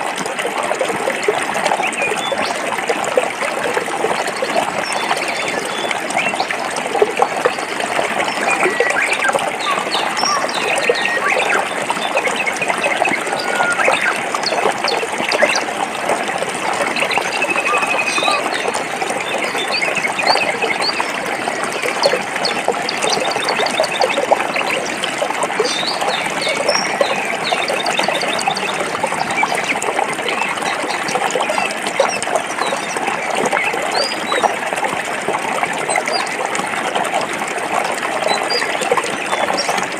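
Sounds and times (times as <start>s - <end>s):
stream running over rocks: 0.0s - 39.9s
small birds chirping: 7.5s - 15.6s, 16.9s - 21.2s, 21.8s - 32.8s.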